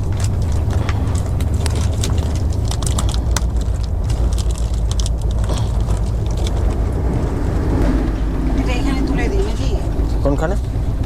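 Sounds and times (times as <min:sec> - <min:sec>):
food package crackling: 0:00.0 - 0:07.7
train rumbling: 0:00.0 - 0:11.0.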